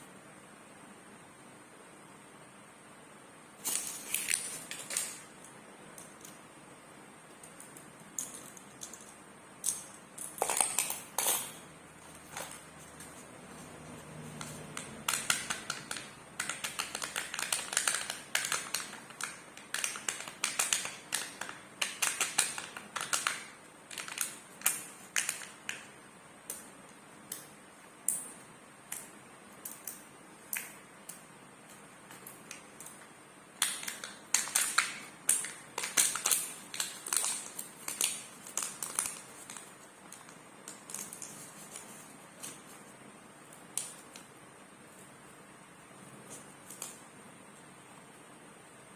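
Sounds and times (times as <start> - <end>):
foil wrappers crinkling: 3.6 - 5.2, 33.6 - 42.8.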